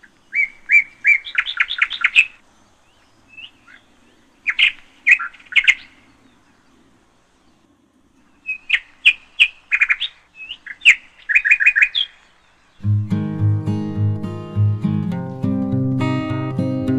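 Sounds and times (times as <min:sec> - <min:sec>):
small bird chirping: 0:00.0 - 0:06.8, 0:07.4 - 0:13.0.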